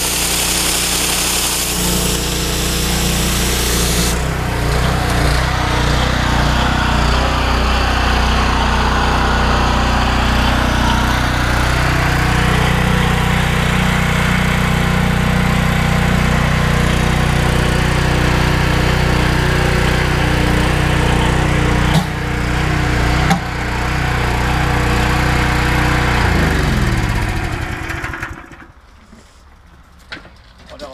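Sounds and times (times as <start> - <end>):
water jets hissing: 0.0 - 4.4
pressure washer running: 0.0 - 28.6.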